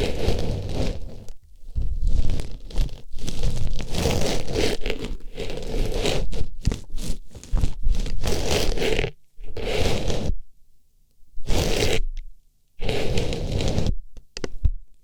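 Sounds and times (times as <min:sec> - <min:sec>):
rustling against a microphone: 0:00.0 - 0:10.4, 0:12.8 - 0:14.0.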